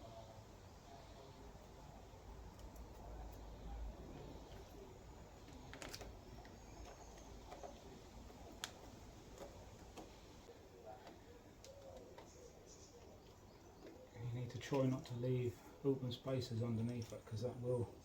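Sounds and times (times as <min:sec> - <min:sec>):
hands pressing adhesive sheet: 0:05.4 - 0:10.4.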